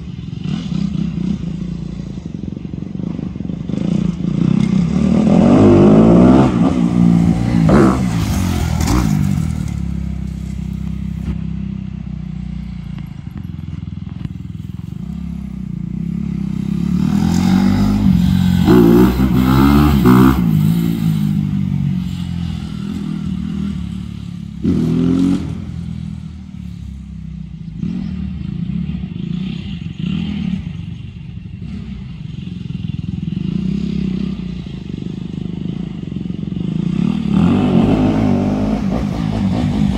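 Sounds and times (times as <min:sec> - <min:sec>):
dirt bike engine revving: 0:03.7 - 0:11.4, 0:14.9 - 0:26.4, 0:36.5 - 0:39.9.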